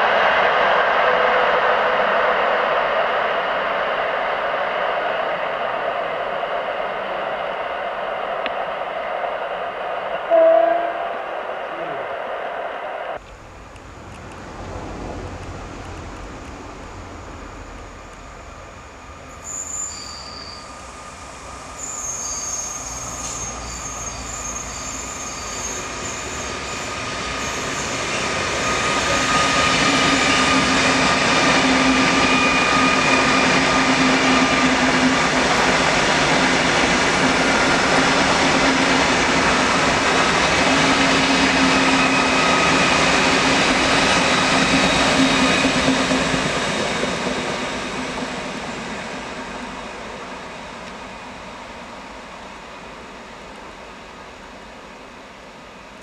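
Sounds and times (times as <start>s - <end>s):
high-speed train passing: 0.0s - 56.0s
thin high tones: 19.3s - 20.9s.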